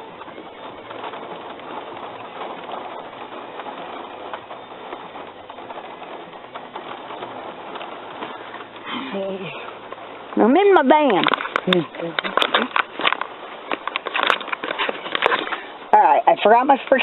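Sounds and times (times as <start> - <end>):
rain on a vehicle roof: 0.0 - 17.0.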